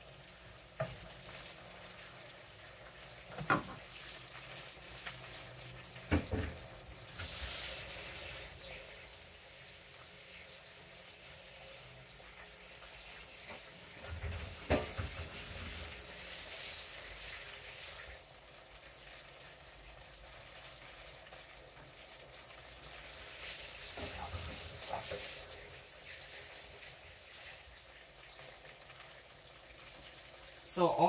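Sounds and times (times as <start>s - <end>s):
chicken wings frying in oil: 0.0s - 31.0s.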